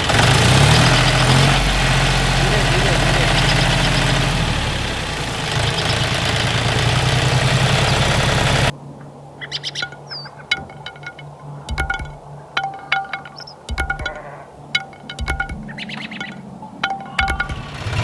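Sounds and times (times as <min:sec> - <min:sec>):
mini tractor engine humming: 0:00.0 - 0:08.7, 0:14.8 - 0:18.0
plucked notes: 0:09.8 - 0:18.0.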